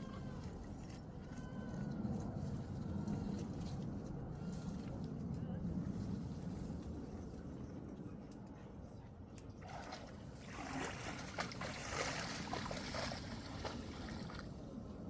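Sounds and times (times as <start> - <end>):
low steady rumble: 0.0 - 15.0
stream water splashing: 9.6 - 14.7.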